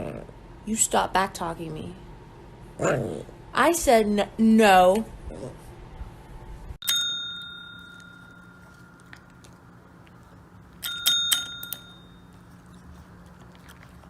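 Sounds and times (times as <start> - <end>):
small metal bell ringing: 6.8 - 9.2, 10.8 - 12.4.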